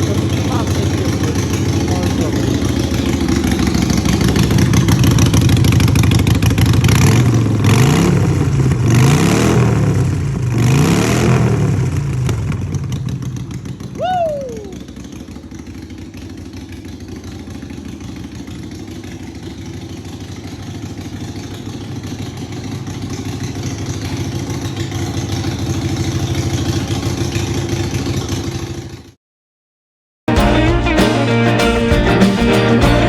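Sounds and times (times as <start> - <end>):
motorcycle engine idling: 0.0 - 10.6, 11.4 - 29.2.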